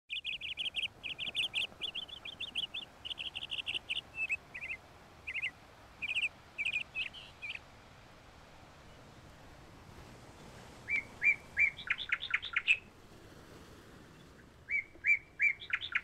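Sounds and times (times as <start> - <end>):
small bird chirping: 0.1 - 7.6, 10.9 - 12.8, 14.7 - 16.0.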